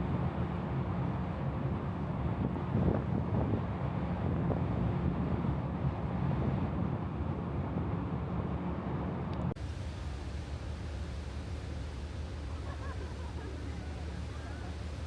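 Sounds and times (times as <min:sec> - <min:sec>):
ferry engine rumble: 0:00.0 - 0:15.0
wind buffeting microphone: 0:01.4 - 0:08.6.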